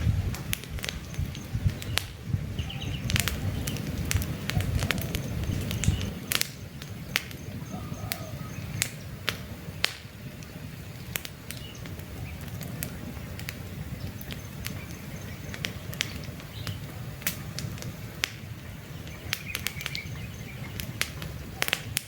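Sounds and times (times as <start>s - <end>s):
campfire crackling and popping: 0.0s - 22.0s
faint bird chirps: 4.5s - 9.1s.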